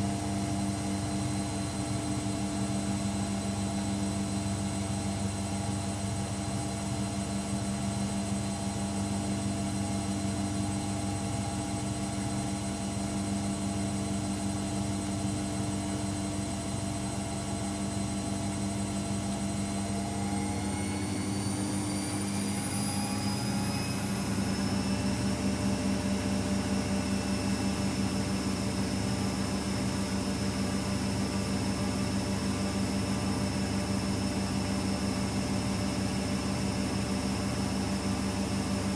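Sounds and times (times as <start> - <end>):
washing machine whining: 20.0 - 38.9.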